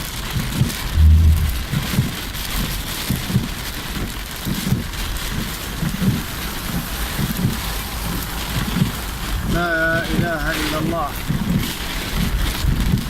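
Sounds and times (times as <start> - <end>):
low bumps: 0.8 - 2.5
heavy rain hissing: 0.8 - 3.2, 5.1 - 11.3.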